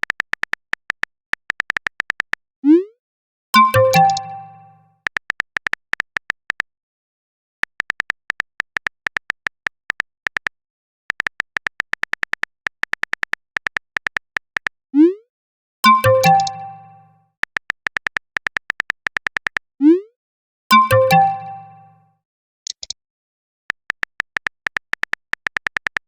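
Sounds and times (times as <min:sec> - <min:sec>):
phone keyboard typing ticks: 0:00.0 - 0:02.4, 0:03.6 - 0:06.7, 0:07.6 - 0:14.8, 0:15.8 - 0:19.7, 0:20.7 - 0:22.0, 0:22.7 - 0:23.0, 0:23.7 - 0:26.0
message notification chime: 0:03.6 - 0:04.8, 0:15.9 - 0:17.1, 0:20.7 - 0:22.0.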